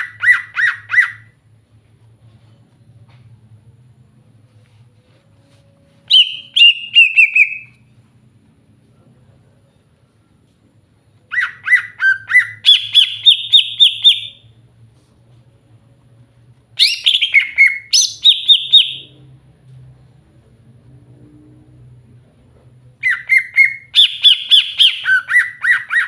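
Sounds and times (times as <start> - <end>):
bird chirping song: 6.1 - 7.9, 11.3 - 14.5, 16.8 - 19.2, 23.0 - 26.0.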